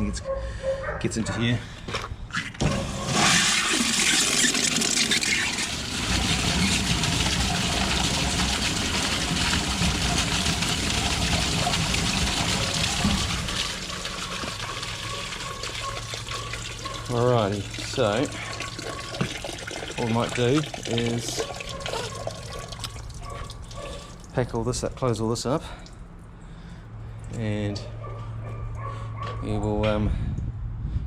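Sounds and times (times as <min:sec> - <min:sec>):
running water rushing: 0:03.1 - 0:24.3.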